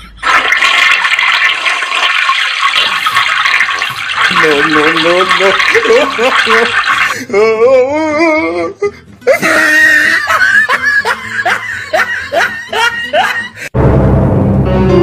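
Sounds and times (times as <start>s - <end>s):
person laughing: 5.4s - 13.7s.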